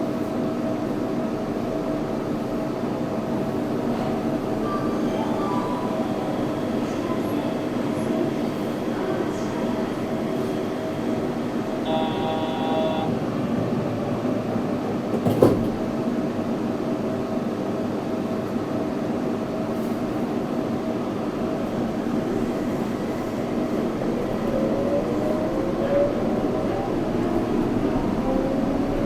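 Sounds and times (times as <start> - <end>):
faint motor tone: 11.9 - 13.1.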